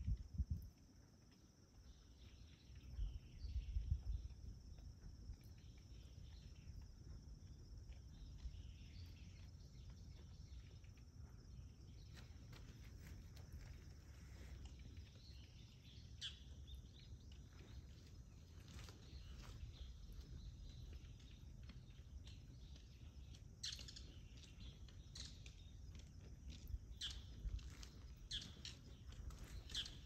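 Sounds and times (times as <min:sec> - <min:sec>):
bird chirps: 0:08.0 - 0:30.0.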